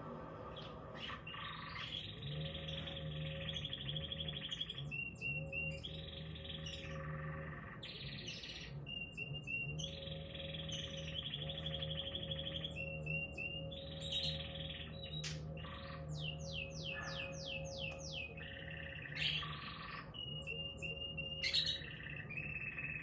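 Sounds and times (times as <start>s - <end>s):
quiet music with low notes: 0.0s - 23.0s
small bird singing: 0.0s - 23.0s.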